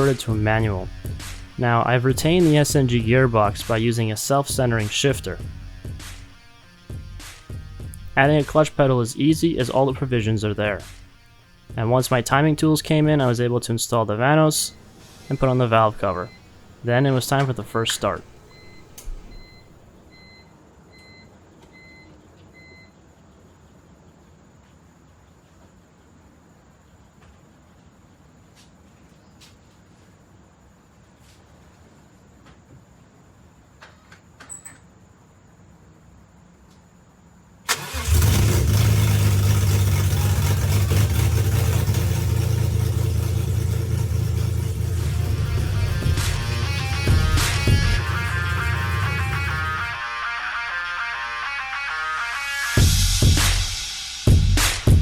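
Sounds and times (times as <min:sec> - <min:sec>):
car engine cranking and running: 0:14.3 - 0:19.9, 0:37.7 - 0:50.0
short high electronic beeps: 0:17.7 - 0:20.4.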